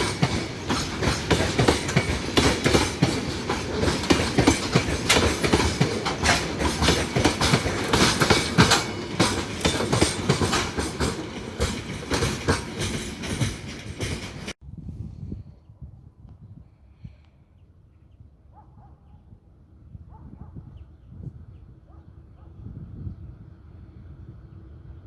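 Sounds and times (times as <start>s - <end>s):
train wheels clattering over rails: 0.0s - 14.6s.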